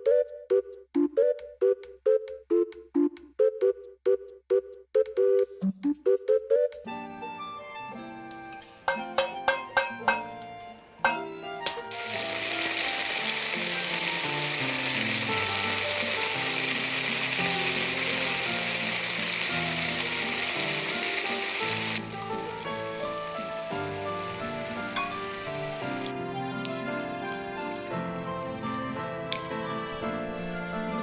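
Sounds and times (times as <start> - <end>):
background music: 0.0 - 31.0
loud sizzling hiss: 11.9 - 26.2.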